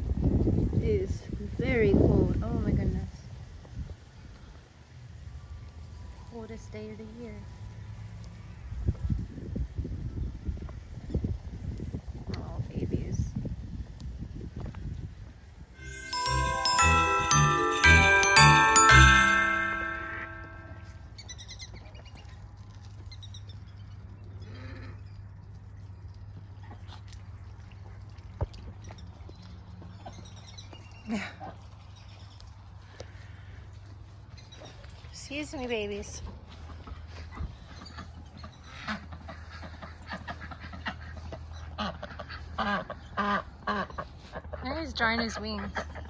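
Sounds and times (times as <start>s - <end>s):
struck chime tones: 15.8s - 20.9s
ducks calling: 36.7s - 44.6s.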